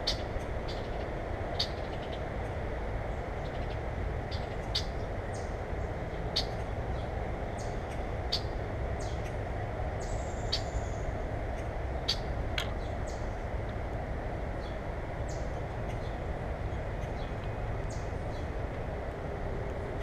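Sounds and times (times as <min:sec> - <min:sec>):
small birds chirping: 0:10.0 - 0:13.5, 0:14.5 - 0:18.8.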